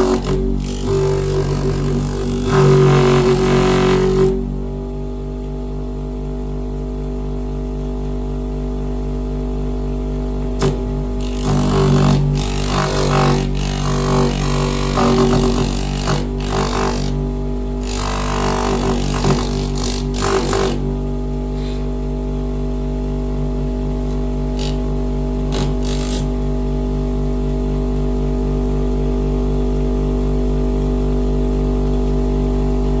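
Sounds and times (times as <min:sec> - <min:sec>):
electric motor humming: 0:00.0 - 0:04.8, 0:10.6 - 0:21.7, 0:24.0 - 0:26.5
noisy sanding bursts: 0:17.8 - 0:21.0.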